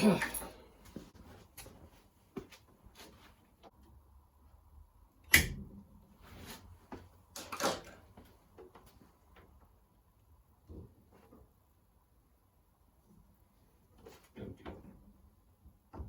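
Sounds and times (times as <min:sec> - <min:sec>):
scuffs and rustle: 0:00.7 - 0:03.7, 0:06.2 - 0:07.1.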